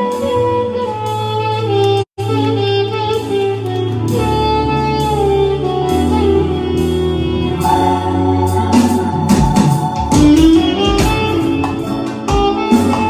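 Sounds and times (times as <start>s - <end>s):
reed instrument melody: 0.0s - 13.0s
stepping bass: 0.0s - 13.0s
sharp drum strokes: 7.6s - 13.0s.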